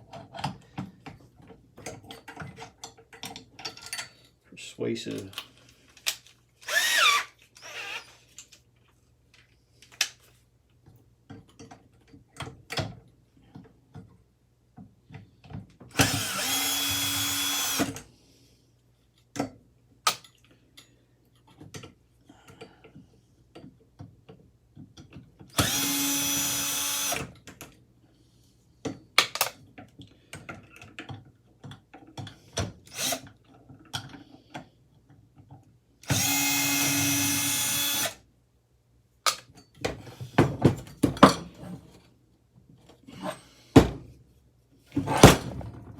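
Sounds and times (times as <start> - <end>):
power tool running: 6.6 - 8.0, 16.0 - 18.0, 25.6 - 27.2, 36.1 - 38.2.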